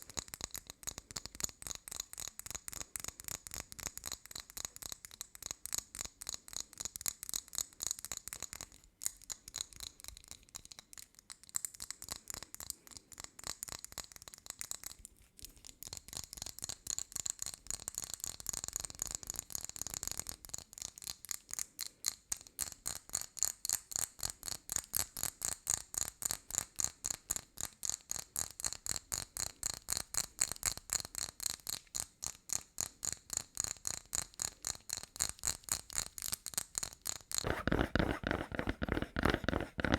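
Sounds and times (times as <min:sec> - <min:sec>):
fast tapping on hard object: 0:27.7 - 0:39.9.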